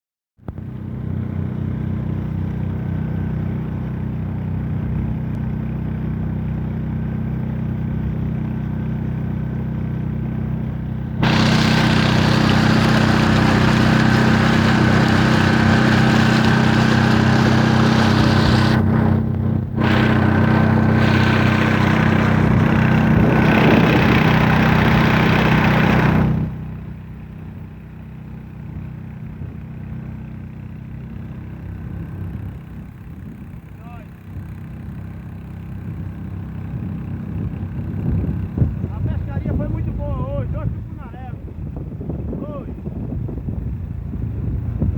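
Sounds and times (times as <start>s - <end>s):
boat engine humming: 6.4s - 44.9s
loud rushing hiss: 11.2s - 18.8s.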